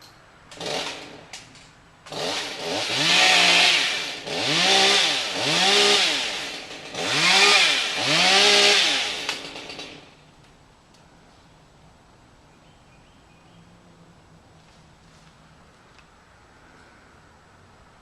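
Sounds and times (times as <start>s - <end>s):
chainsaw revving: 0.5s - 1.3s, 2.1s - 10.2s.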